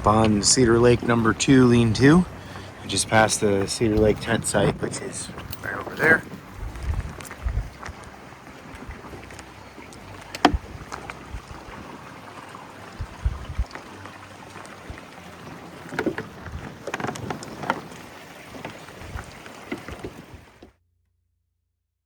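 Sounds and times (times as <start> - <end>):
steady outdoor hiss: 0.0 - 17.1
footsteps on a trail: 0.0 - 20.4
gear knocks: 10.2 - 11.6.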